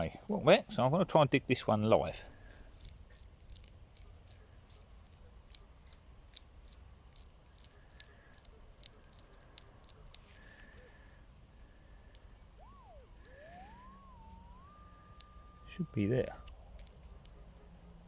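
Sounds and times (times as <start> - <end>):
faint crackling clicks: 1.9 - 18.0
metal detector high tone: 12.6 - 17.0.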